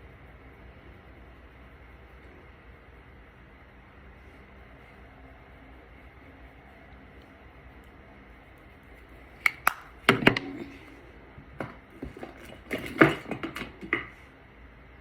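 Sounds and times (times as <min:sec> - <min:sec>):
makeup containers clicking: 0:09.4 - 0:10.6.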